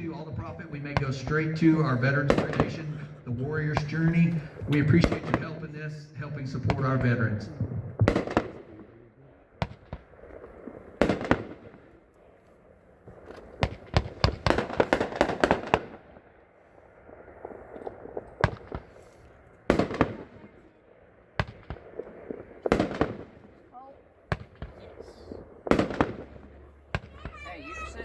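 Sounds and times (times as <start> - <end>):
firework shots bursting: 0.0 - 3.1, 3.7 - 5.7, 7.6 - 8.9, 9.6 - 12.0, 13.1 - 16.3, 17.3 - 20.7, 21.3 - 28.0.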